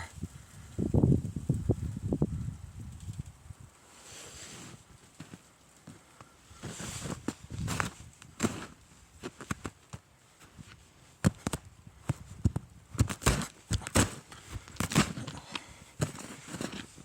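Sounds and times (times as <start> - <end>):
footsteps crunching in snow: 4.0 - 17.0.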